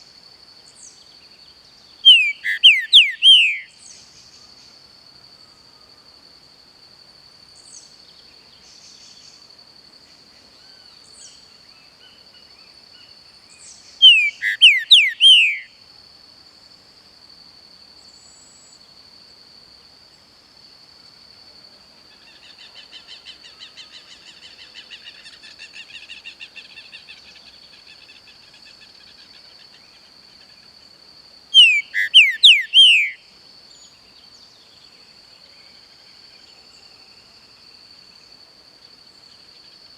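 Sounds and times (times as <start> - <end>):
bird singing whistled notes: 2.0 - 4.5, 13.6 - 15.8, 31.5 - 34.0.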